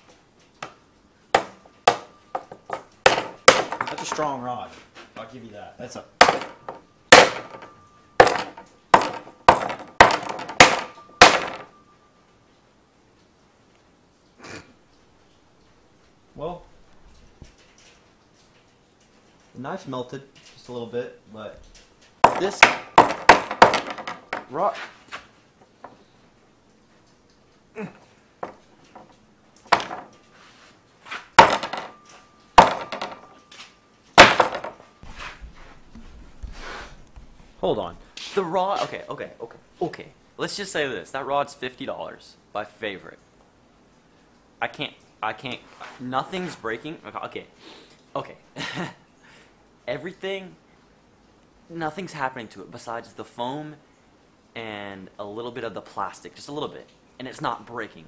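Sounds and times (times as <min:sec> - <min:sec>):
knife chopping on rod: 0:06.2 - 0:07.6, 0:08.2 - 0:11.6
lingering ringing tone: 0:06.6 - 0:08.2, 0:10.8 - 0:12.4.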